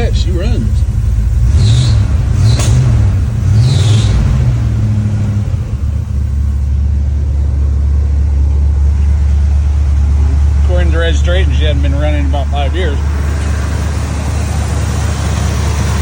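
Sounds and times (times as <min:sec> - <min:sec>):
car engine revving and idling: 0:00.0 - 0:16.0.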